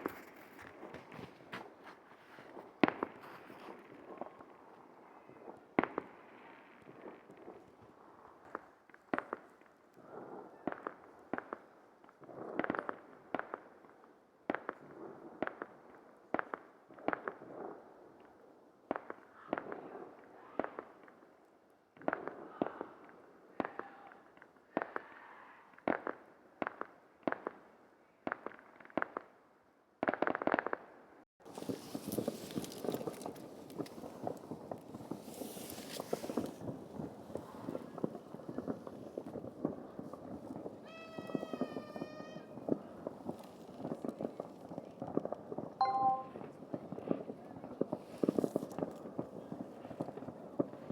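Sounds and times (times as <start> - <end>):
fireworks bangs: 0.0 - 7.7, 31.5 - 50.9
fireworks crackling: 0.0 - 9.5, 30.1 - 50.9.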